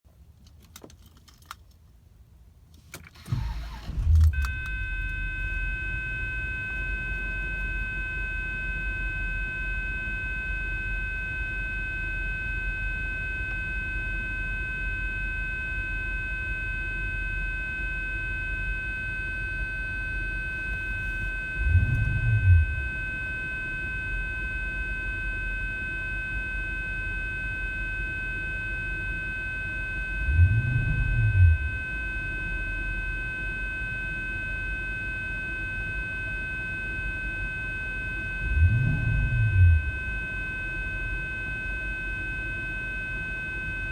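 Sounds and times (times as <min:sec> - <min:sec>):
car engine starting and idling: 0:02.8 - 0:06.8, 0:20.4 - 0:23.9, 0:30.2 - 0:32.8, 0:38.4 - 0:40.8
high whine: 0:03.2 - 0:43.9.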